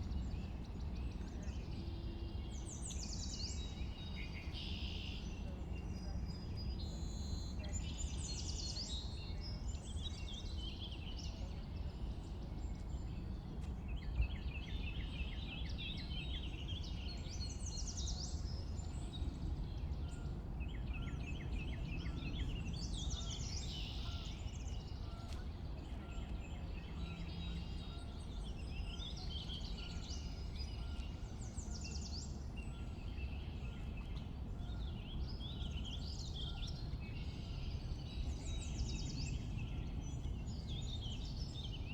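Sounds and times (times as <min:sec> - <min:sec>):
songbirds singing: 0:00.0 - 0:41.9.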